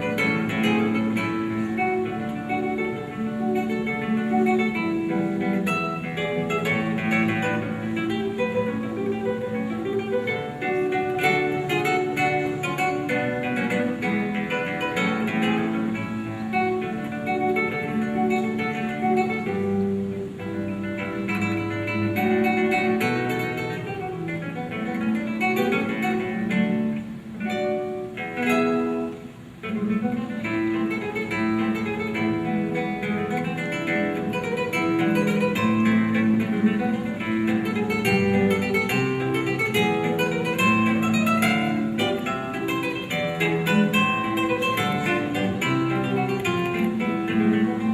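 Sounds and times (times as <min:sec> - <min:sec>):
acoustic guitar playing: 0:00.0 - 0:47.9.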